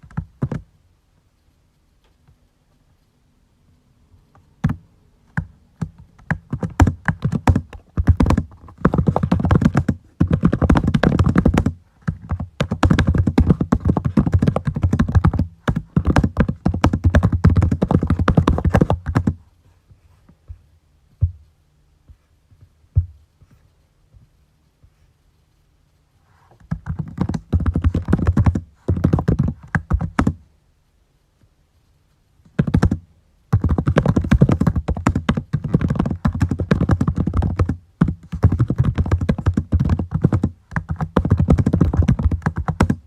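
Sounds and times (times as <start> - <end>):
typing on computer keyboard: 4.6 - 19.4, 26.7 - 30.4, 32.6 - 43.0.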